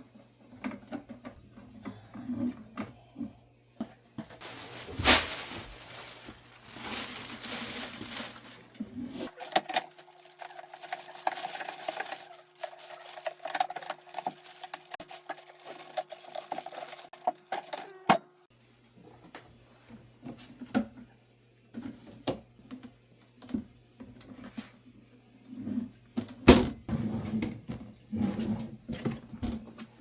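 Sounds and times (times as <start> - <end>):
objects being handled: 3.8 - 18.2.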